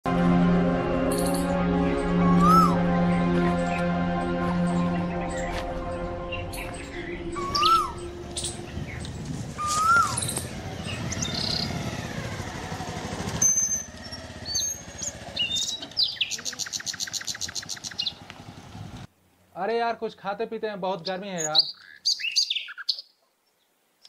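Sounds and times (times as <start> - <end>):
low rumble: 0.1 - 13.4
birds chirping: 1.1 - 19.1, 20.9 - 23.8
whistled bird call: 2.2 - 2.8, 7.3 - 11.7, 13.4 - 18.2.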